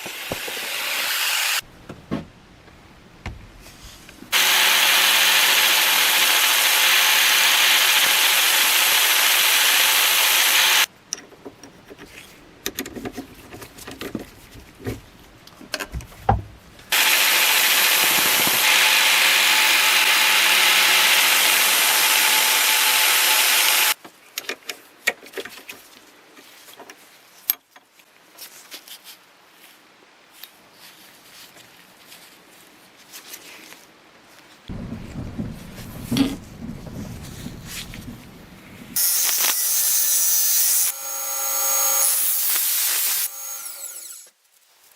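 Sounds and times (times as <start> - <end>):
power tool running: 0.0 - 1.6, 4.3 - 10.9, 16.9 - 24.0, 39.0 - 44.3.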